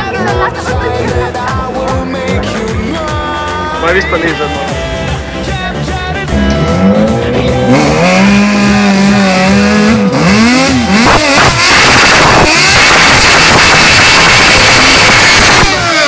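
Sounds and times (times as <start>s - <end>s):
motorcycle engine revving: 4.9s - 16.0s.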